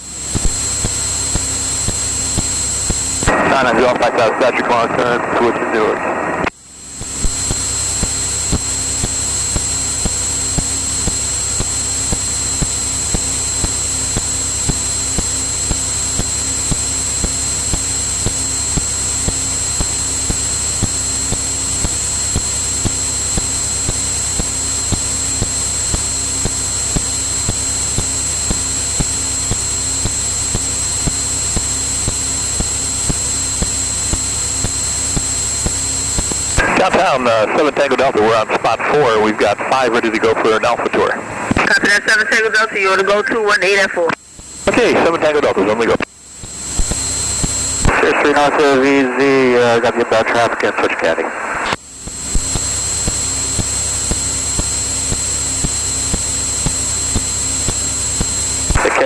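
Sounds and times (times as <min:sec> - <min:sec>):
airplane engine and propeller drone: 0:00.0 - 0:59.0
high-pitched whine: 0:00.0 - 0:59.0
radio call: 0:03.2 - 0:12.8, 0:35.4 - 0:46.1, 0:46.8 - 0:52.6, 0:58.6 - 0:59.0.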